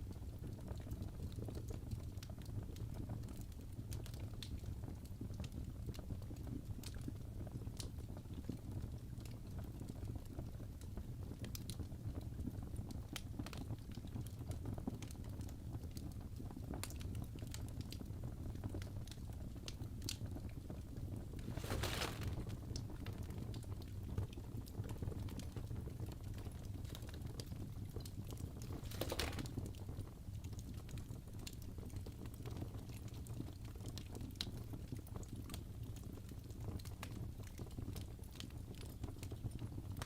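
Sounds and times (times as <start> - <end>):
wood fire crackling: 21.0 - 24.0, 25.5 - 31.0.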